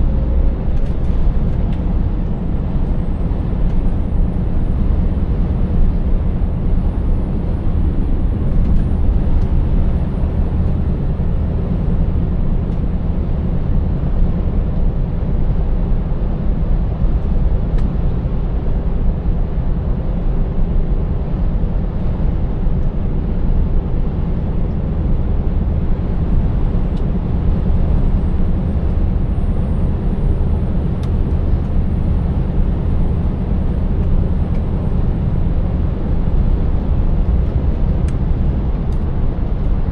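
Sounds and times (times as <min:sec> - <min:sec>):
truck engine cruising: 0:23.3 - 0:39.8.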